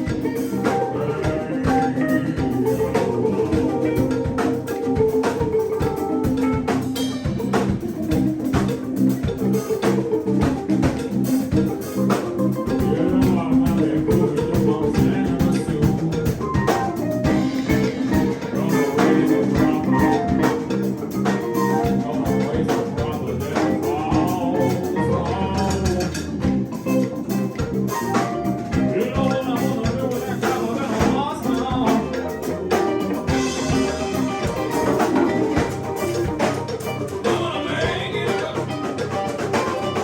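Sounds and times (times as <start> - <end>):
drum kit beat: 0.0 - 40.0
guitar: 0.0 - 40.0
live band playing: 0.0 - 40.0.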